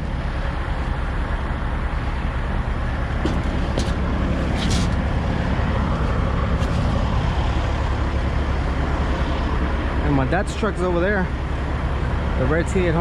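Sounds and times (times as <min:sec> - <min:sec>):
truck diesel engine idling: 0:00.0 - 0:13.0
short scuffs and knocks: 0:03.2 - 0:05.1.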